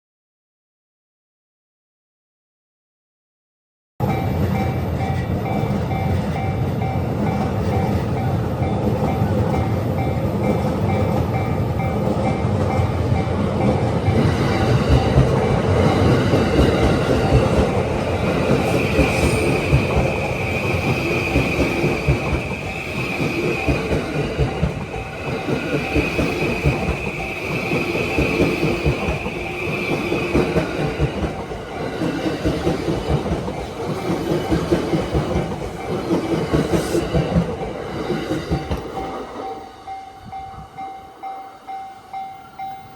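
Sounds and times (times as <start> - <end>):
train wheels clattering on rails: 4.0 - 41.2
crossing warning bell dinging: 4.0 - 42.9.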